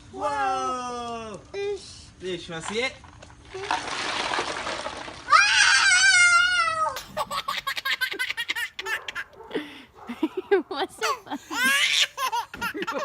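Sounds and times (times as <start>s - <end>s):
child squealing: 5.3s - 7.0s
child giggling: 6.9s - 13.0s.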